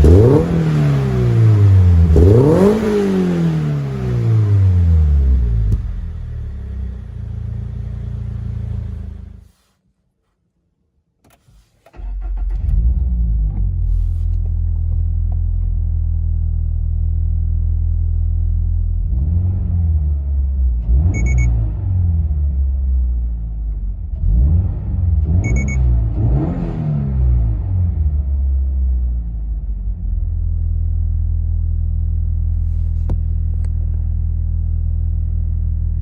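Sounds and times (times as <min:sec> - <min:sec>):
car engine idling and revving: 0:00.0 - 0:09.5, 0:11.5 - 0:36.0
electronic beep: 0:25.4 - 0:25.8.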